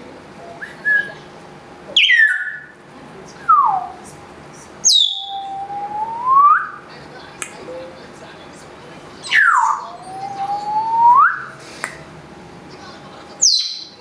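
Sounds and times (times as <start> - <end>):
parrot whistling calls: 0.6 - 1.2, 2.0 - 2.8, 3.5 - 4.0, 4.8 - 6.8, 9.2 - 11.6.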